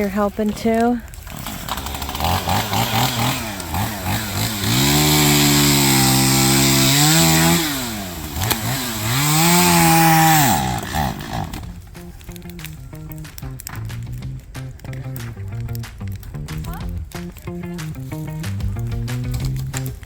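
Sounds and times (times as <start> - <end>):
chainsaw revving: 0.4 - 20.0.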